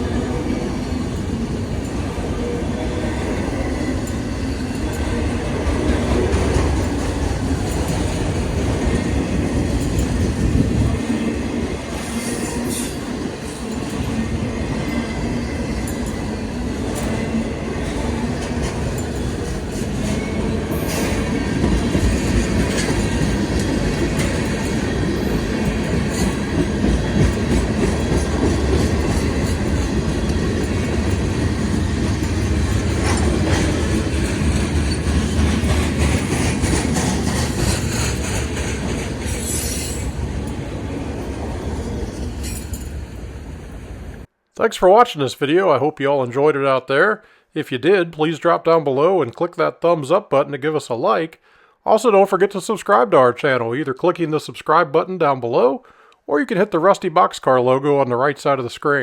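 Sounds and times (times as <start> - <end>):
train wheels rumbling on rail: 0.0 - 44.3
wheels clicking over rail joints: 3.2 - 11.2, 15.7 - 43.4
high wheel squeals: 37.6 - 40.6.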